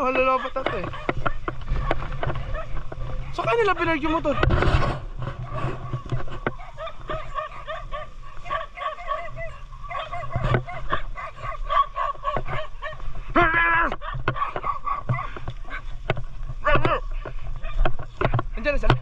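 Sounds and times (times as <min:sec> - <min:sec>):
dogs yipping and whining: 0:00.1 - 0:03.4, 0:04.3 - 0:13.0, 0:14.0 - 0:15.9.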